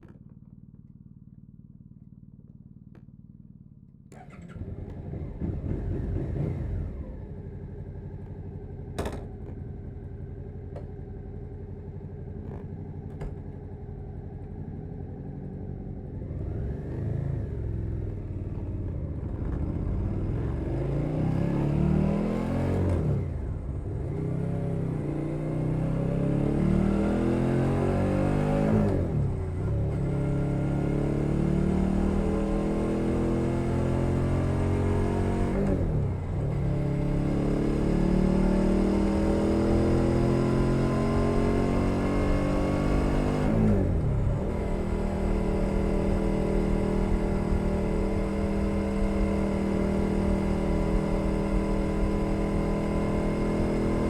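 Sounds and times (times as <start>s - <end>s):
motorcycle engine idling: 0.0s - 6.4s, 7.2s - 16.4s
motorcycle accelerating through gears: 4.1s - 54.0s.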